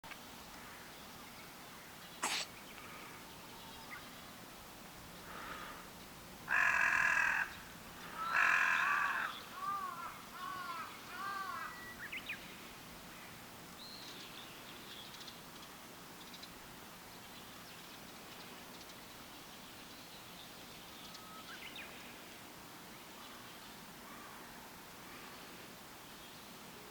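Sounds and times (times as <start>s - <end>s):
harsh bird calls: 2.2s - 2.6s.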